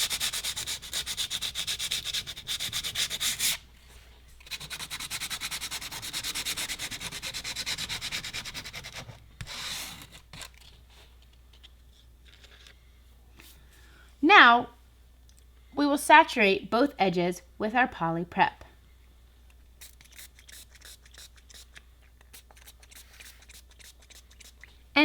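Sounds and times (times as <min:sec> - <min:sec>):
sandpaper rubbing on plastic: 0:00.0 - 0:03.6, 0:04.4 - 0:10.2, 0:19.8 - 0:24.7.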